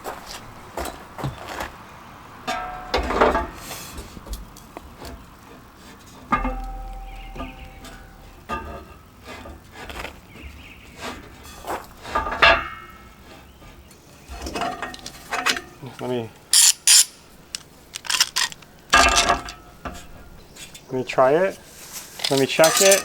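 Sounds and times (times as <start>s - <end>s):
loud scraping rasps: 16.5s - 19.5s
metal parts knocking and clinking: 16.6s - 19.7s, 22.2s - 23.0s.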